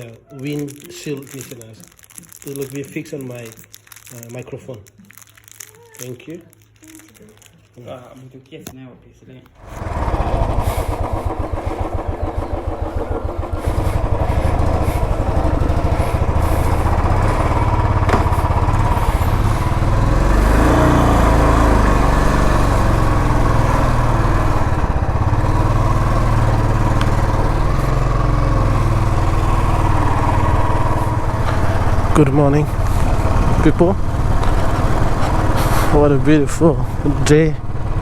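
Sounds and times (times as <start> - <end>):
motorcycle engine idling: 9.6 - 38.0
motorcycle engine revving: 9.6 - 38.0.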